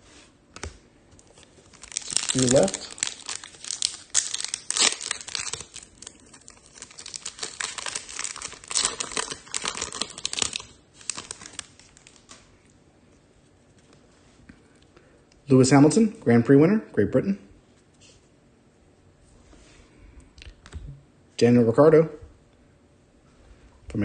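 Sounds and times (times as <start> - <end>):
foil wrapper tearing and crumpling: 1.2 - 12.4.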